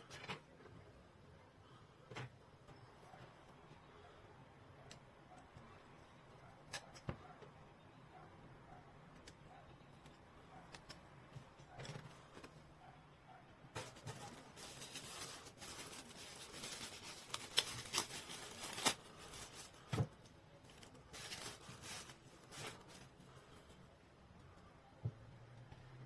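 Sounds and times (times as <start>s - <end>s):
rustling and scraping: 13.8s - 23.9s.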